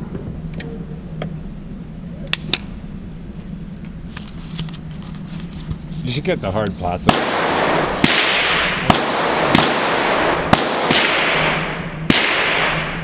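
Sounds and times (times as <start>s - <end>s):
handgun shots with echo: 7.1s - 13.0s.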